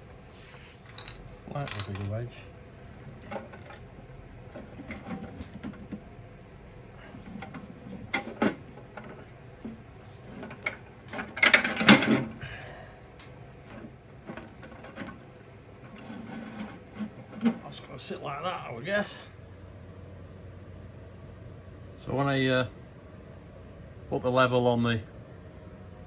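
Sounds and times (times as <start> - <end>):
clicks and knocks of parts: 0.8 - 2.3, 3.0 - 3.9, 7.2 - 12.4, 13.2 - 15.3
loud clatter of parts: 0.8 - 6.0, 7.0 - 9.2, 10.3 - 12.6, 13.7 - 15.3.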